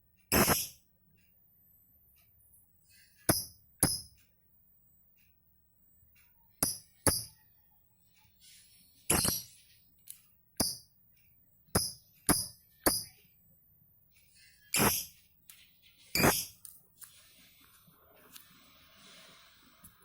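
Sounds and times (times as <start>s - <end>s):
lovebird shrill chirps: 14.7s - 15.2s, 16.1s - 16.6s.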